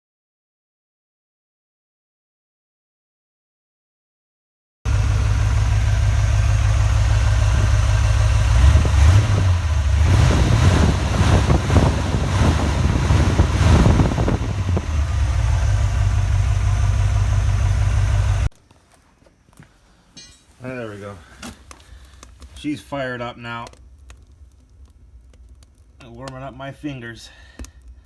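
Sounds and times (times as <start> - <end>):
engine idling and revving: 4.9 - 18.5.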